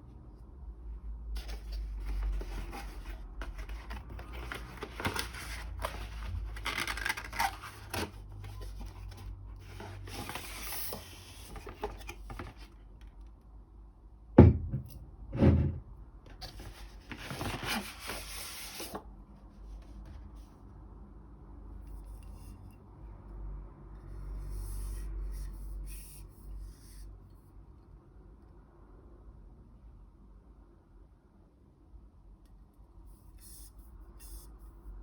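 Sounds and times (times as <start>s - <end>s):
paper and cardboard rustling: 1.4s - 12.8s, 16.4s - 19.1s.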